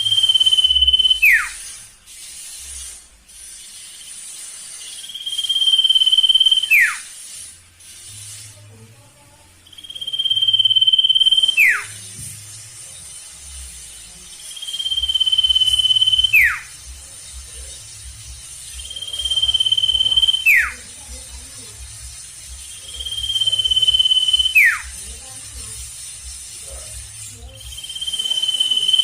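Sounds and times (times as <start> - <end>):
bird whistle call: 0.1 - 1.7, 4.9 - 7.0, 9.8 - 12.0, 14.6 - 16.7, 18.8 - 20.8, 23.0 - 25.0.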